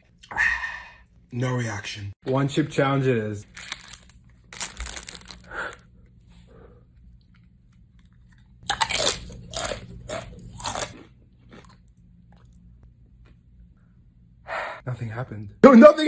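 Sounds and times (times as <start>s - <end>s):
crunching tortilla chip: 3.5s - 5.8s.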